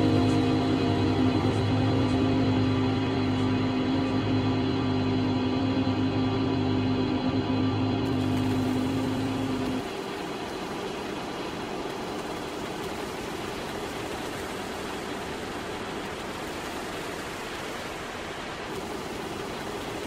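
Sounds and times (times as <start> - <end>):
steady hiss of noise: 8.0 - 20.0.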